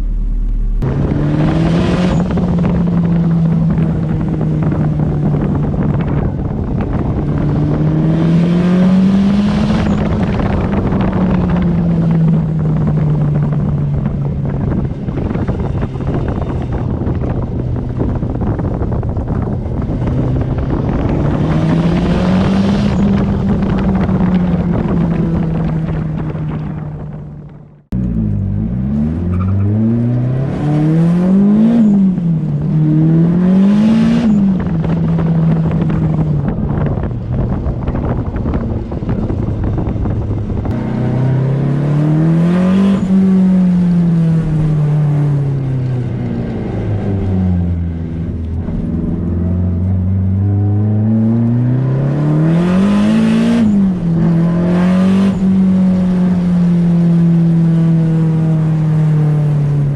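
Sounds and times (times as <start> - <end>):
car engine revving: 0.0 - 59.9
road noise: 0.0 - 59.9.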